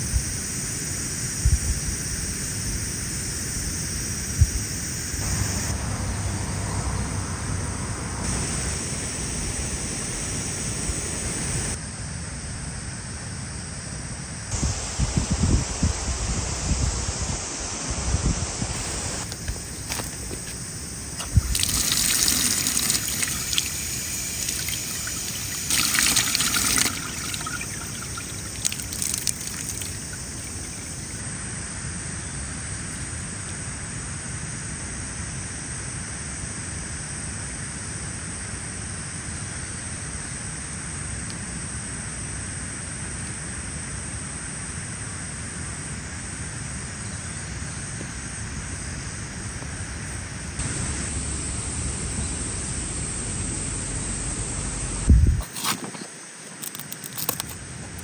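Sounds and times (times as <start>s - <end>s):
steady hiss: 0.0s - 11.8s, 14.5s - 31.3s, 42.8s - 58.0s
water pouring: 18.8s - 31.2s.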